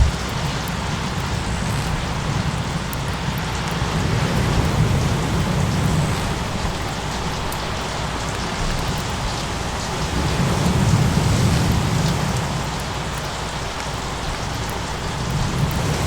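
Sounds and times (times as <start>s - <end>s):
low thunder rumble: 0.0s - 0.6s
faint crackling ticks: 0.0s - 16.0s
steady rain: 0.0s - 16.0s.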